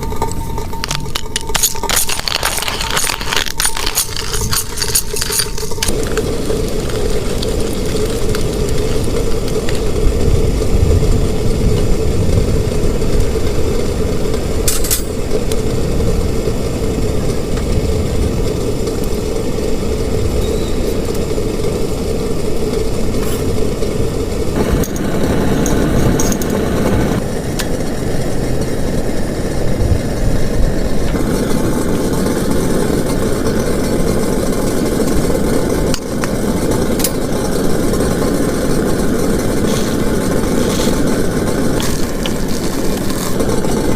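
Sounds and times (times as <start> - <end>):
low rumble: 0.0 - 31.2
heavy rain on plastic tarp: 5.9 - 14.6, 31.2 - 43.9.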